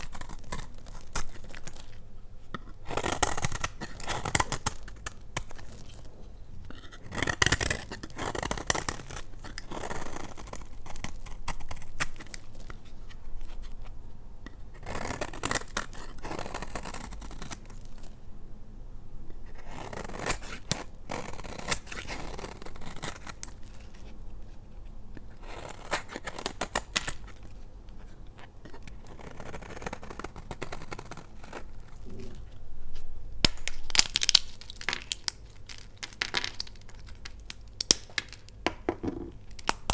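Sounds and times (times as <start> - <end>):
blade cutting soap: 0.0 - 6.0, 28.4 - 32.0.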